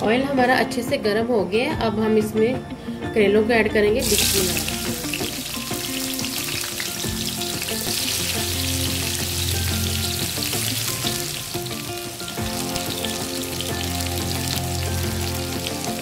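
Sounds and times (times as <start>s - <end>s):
vegetable slices sizzling in oil: 4.0s - 16.0s.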